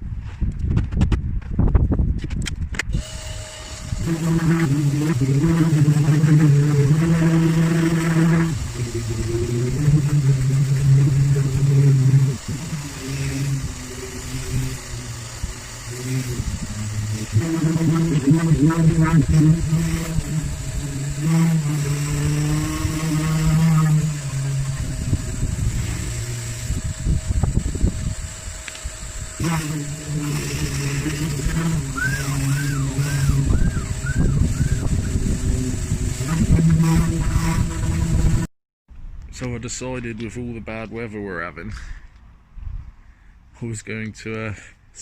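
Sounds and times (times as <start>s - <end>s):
electric sander motor hum: 2.7s - 38.5s
gritty sanding: 3.0s - 38.5s
low rumbling: 3.8s - 39.3s.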